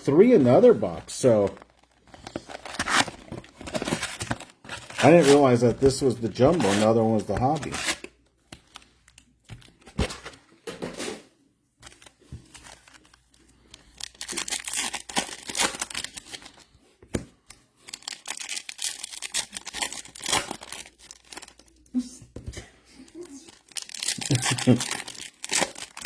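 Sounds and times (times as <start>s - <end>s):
plastic wrapping crinkling: 11.8s - 16.7s, 17.7s - 21.9s, 23.0s - 26.0s.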